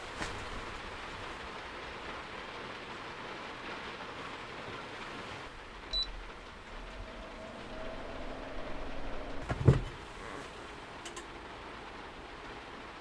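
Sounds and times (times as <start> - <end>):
handling rustling: 0.0 - 1.4
steady hiss: 0.0 - 13.0.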